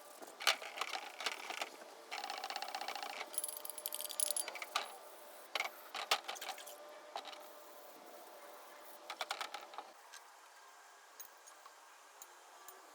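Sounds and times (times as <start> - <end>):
metal tools clinking and rattling: 2.2 - 4.9.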